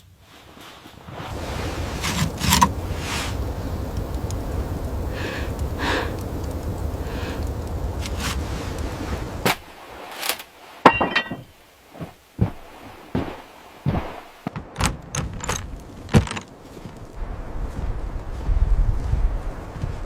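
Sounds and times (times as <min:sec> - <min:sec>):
irregular knocks and clatters: 0:10.9 - 0:17.1.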